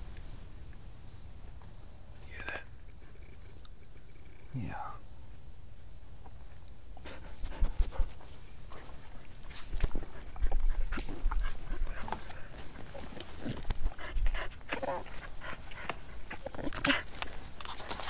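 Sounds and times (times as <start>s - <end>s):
rustling: 6.2s - 18.0s
coyotes crying: 14.5s - 15.2s.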